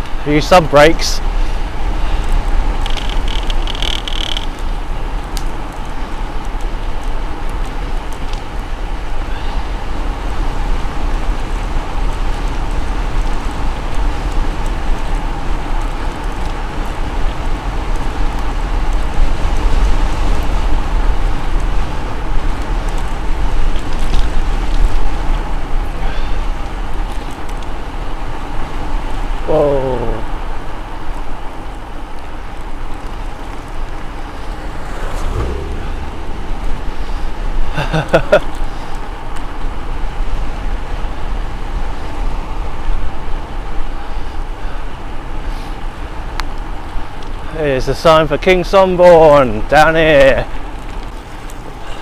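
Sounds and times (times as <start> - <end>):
road rumble: 0.0 - 29.5, 30.1 - 52.0
wind rushing over microphone: 33.1 - 40.8
bicycle tyres hissing on road: 33.2 - 39.2, 40.0 - 48.0.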